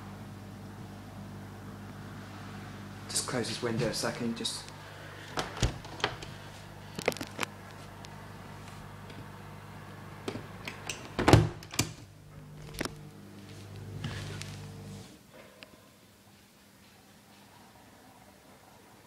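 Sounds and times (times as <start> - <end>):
dishwasher humming: 0.0 - 6.7, 8.2 - 15.2.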